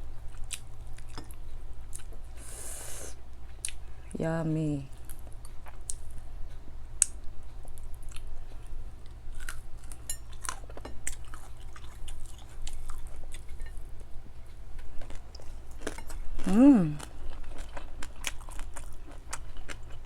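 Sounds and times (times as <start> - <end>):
steady low hum: 0.0 - 20.0
person chewing and smacking: 0.3 - 2.2, 7.0 - 14.1, 14.7 - 20.0.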